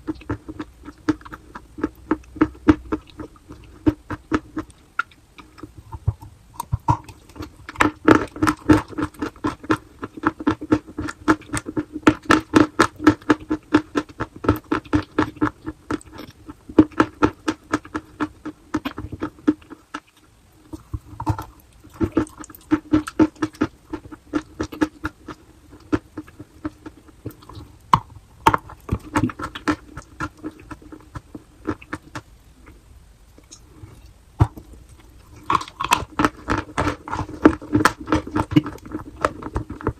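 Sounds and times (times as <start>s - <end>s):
chalk crunching being chewed: 33.4s - 39.9s.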